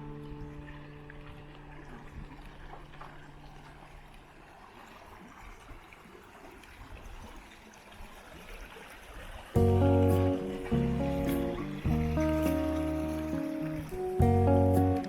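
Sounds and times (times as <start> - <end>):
stream water trickling: 0.0 - 15.0.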